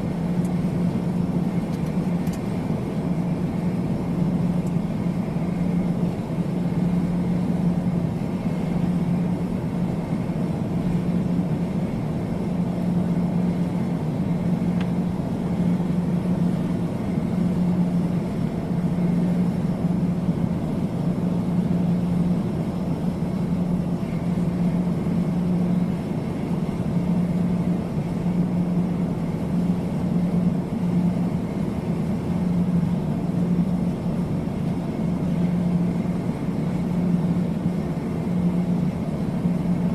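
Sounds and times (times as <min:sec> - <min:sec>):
aircraft drone: 0:00.0 - 0:39.9.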